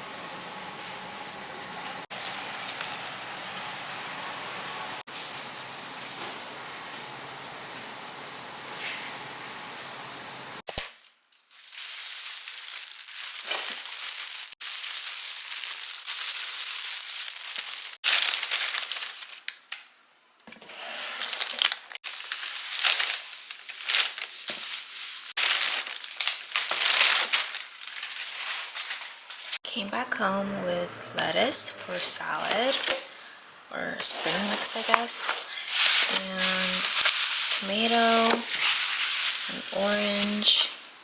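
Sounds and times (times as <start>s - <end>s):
plastic packaging crinkling: 2.1s - 3.2s, 10.9s - 19.9s, 21.2s - 29.6s, 34.0s - 41.0s.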